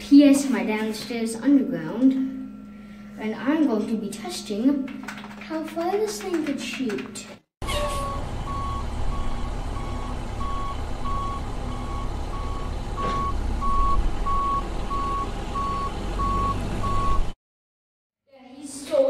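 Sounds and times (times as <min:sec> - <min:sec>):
low engine rumble: 0:07.6 - 0:17.3
reversing alarm beeping: 0:07.7 - 0:17.4.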